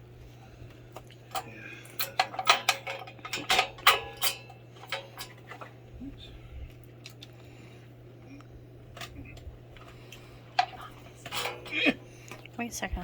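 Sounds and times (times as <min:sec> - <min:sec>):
hard parts clicking together: 0:01.3 - 0:05.7, 0:10.6 - 0:12.4.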